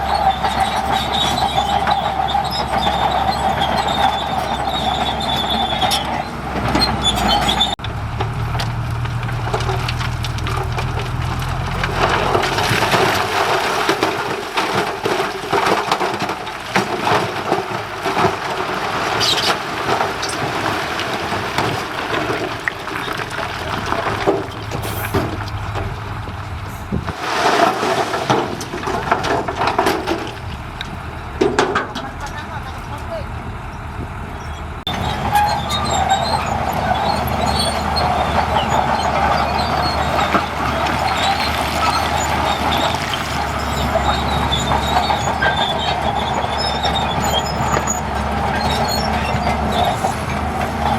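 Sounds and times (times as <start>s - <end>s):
high squeal: 0.0s - 7.8s, 34.4s - 50.3s
heavy machinery engine: 0.0s - 50.9s
knocks and scraping: 0.0s - 50.9s.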